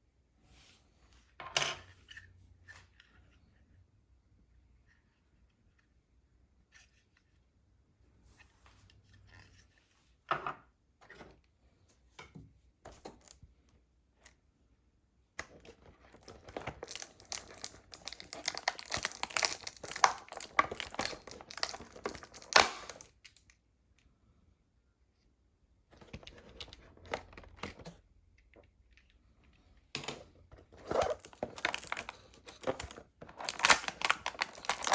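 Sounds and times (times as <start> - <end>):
packaging clicks and rustles: 15.4 - 23.4, 25.9 - 28.7, 30.0 - 34.9
packaging crinkling and tearing: 15.5 - 23.1, 30.6 - 34.9.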